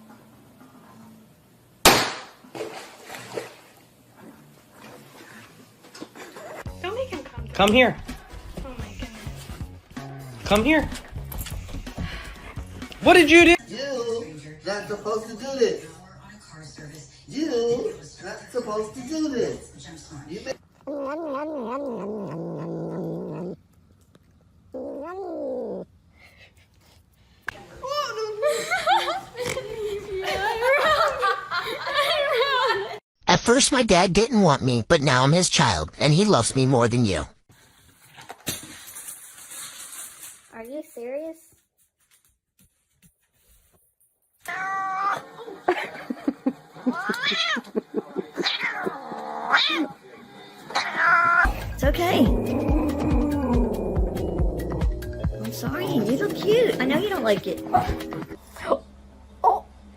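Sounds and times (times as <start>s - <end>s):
cat yowling: 20.8s - 23.6s, 24.7s - 25.9s, 44.4s - 45.3s, 46.9s - 47.7s, 48.4s - 50.0s, 50.7s - 51.5s, 52.2s - 54.4s.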